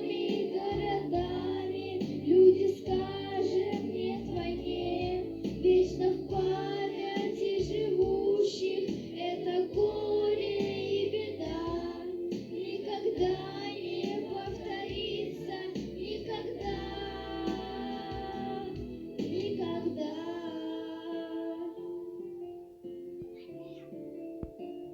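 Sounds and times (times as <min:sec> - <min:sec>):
instrumental backing music: 0:00.0 - 0:24.9.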